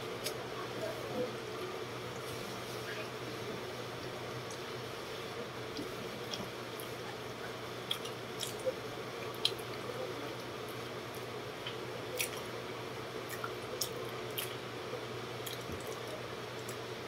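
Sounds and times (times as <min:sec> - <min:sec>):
electric fan hum: 0:00.0 - 0:17.0
wet chewing and lip-smacking: 0:07.8 - 0:12.6, 0:13.2 - 0:14.7, 0:15.4 - 0:16.9.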